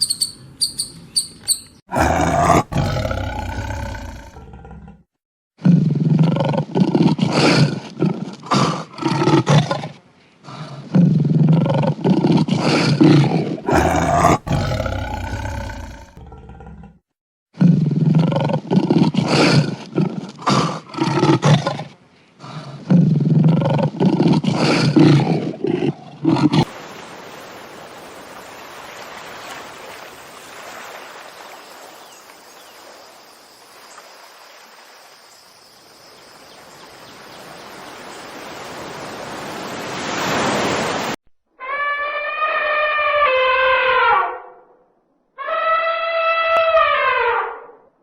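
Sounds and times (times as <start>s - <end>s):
lion roaring: 1.9s - 5.0s, 10.9s - 17.0s.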